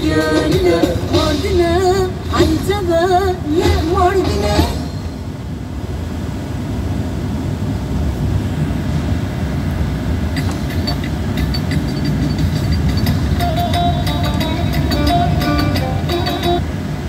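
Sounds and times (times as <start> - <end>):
music tones: 10.4 - 16.7.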